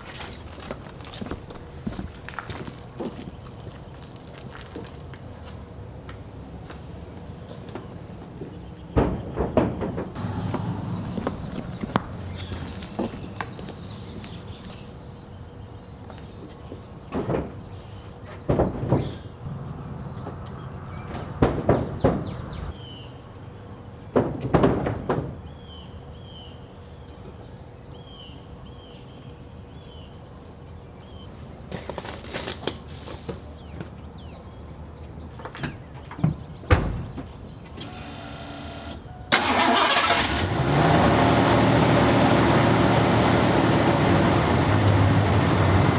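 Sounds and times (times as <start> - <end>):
knocks of wheels being handled: 9.0 - 13.7
vehicle engine running: 10.2 - 14.8, 39.4 - 45.9.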